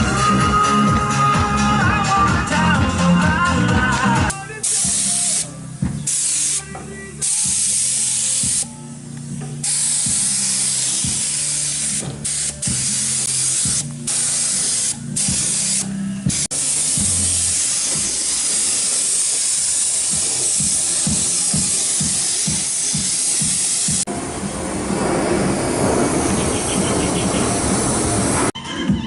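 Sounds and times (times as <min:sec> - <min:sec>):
music: 0:00.0 - 0:24.1, 0:28.5 - 0:29.0
paint spray gun hissing: 0:04.3 - 0:24.1.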